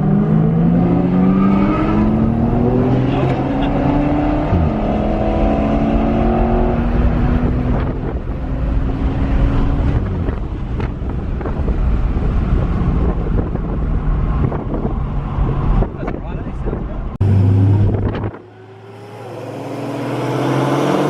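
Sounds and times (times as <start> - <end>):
wind noise on microphone: 4.0 - 18.5
car engine running: 17.2 - 18.9.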